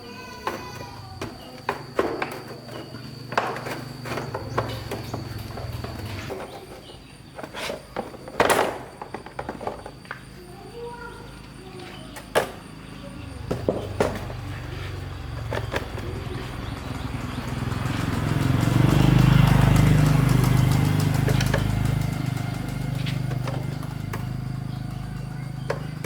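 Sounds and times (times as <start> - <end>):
vehicle engine running: 1.8 - 6.4, 10.8 - 26.0.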